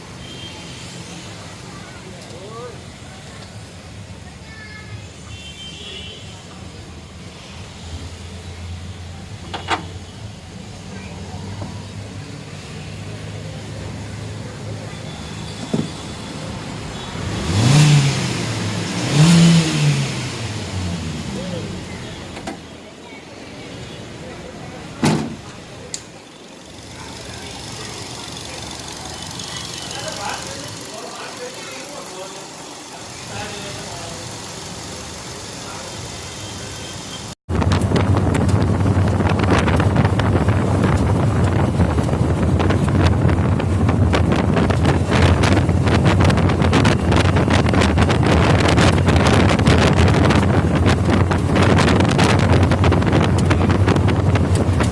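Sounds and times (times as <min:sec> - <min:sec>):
car engine idling and revving: 0:06.7 - 0:22.7, 0:24.8 - 0:54.9
wind buffeting microphone: 0:37.5 - 0:54.9.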